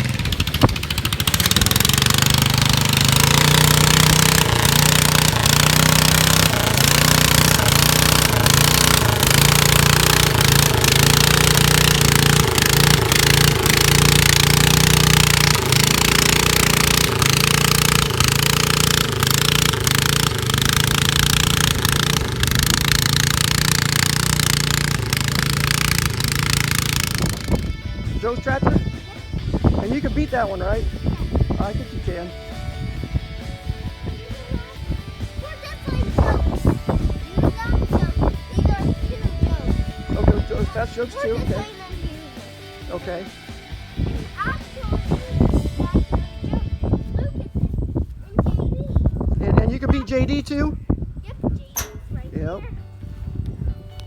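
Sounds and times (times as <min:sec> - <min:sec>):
garden tractor engine at high revs: 0:00.0 - 0:45.8.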